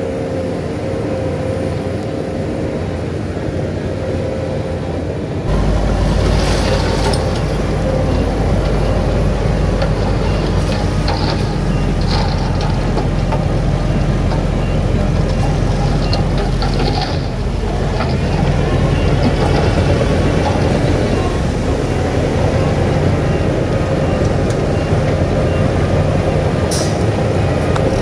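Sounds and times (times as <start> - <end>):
heavy diesel engine under load: 5.4 - 28.0.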